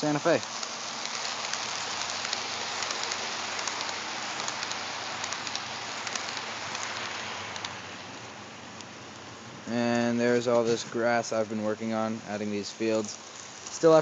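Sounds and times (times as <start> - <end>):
model train running on track: 0.0 - 7.7.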